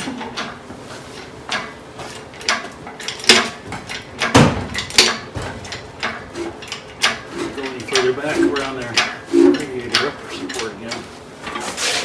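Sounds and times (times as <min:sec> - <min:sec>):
metal clanks from engine bay: 0:01.2 - 0:11.8
dull clunk: 0:04.3 - 0:05.8.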